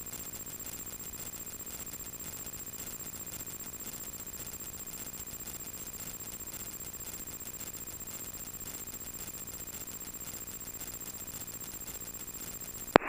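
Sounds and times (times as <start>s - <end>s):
steady radio hiss: 1.3s - 13.0s.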